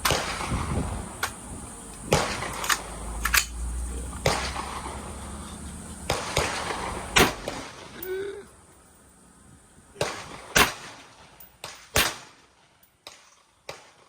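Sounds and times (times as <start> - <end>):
gunshots: 0.0 - 0.8, 2.1 - 2.9, 4.2 - 5.1, 6.1 - 8.0, 10.0 - 14.0.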